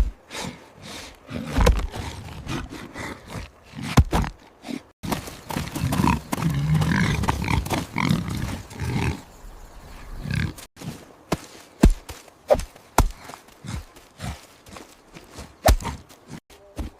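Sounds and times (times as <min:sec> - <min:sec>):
wild boar grunting: 0:00.0 - 0:09.4, 0:13.1 - 0:16.4.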